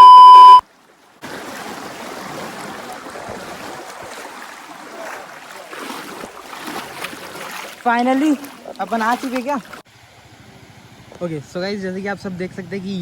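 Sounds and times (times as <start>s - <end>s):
loud electronic bleep: 0.0s - 0.6s
stream flowing: 0.0s - 10.9s.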